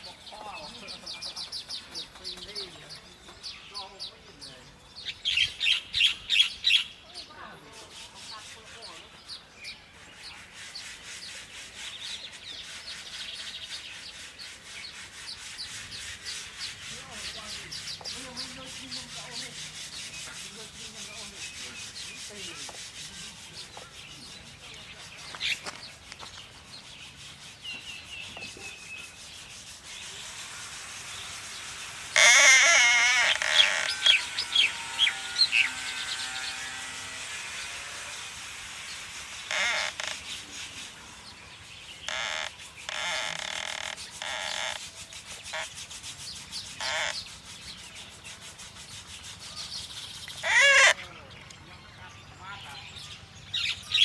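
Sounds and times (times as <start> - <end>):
warbling bird calls: 0.0 - 54.0
soft scraping and rustling: 7.4 - 30.7.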